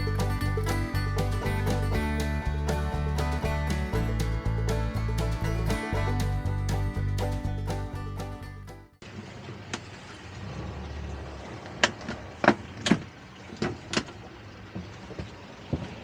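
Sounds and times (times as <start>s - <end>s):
background music: 0.0s - 8.9s.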